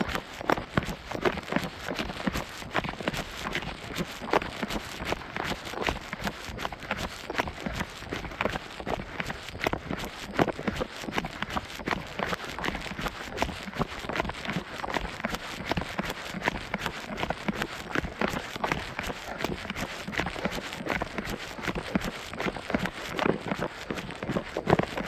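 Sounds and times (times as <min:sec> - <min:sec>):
running footsteps on trail: 0:00.0 - 0:25.0.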